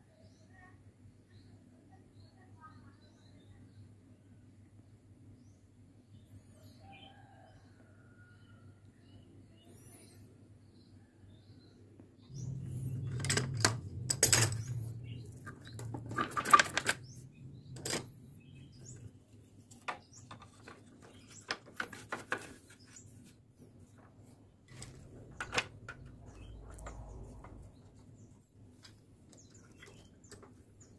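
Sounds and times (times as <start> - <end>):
low hum: 12.3 - 19.6, 24.0 - 30.9.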